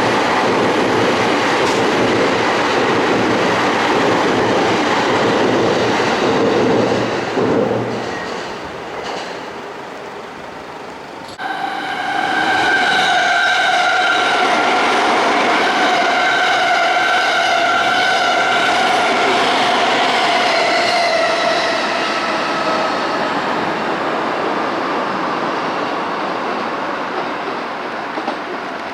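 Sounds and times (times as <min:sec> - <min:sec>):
rumble of wheels on rail: 0:00.0 - 0:28.9
electric train motor whine: 0:09.6 - 0:23.3.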